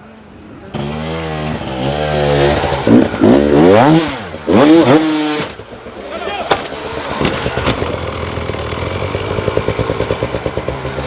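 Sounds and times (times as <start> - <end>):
dirt bike engine revving: 0.8 - 11.0.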